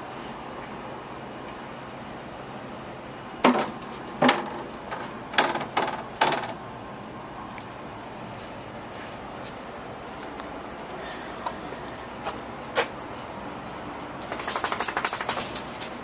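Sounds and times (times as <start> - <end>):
sharp knocks: 3.4 - 6.6.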